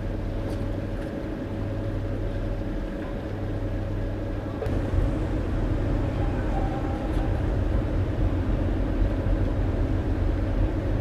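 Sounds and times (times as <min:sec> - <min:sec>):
engine droning: 0:04.4 - 0:11.0.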